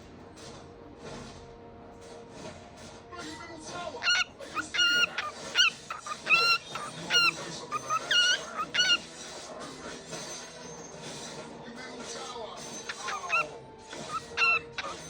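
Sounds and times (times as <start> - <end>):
bird calling: 4.0 - 9.1, 12.8 - 15.0.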